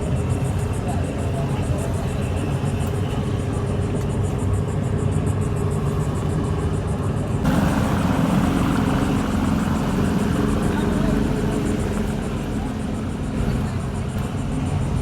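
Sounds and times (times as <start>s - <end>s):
engine running: 5.5s - 15.0s.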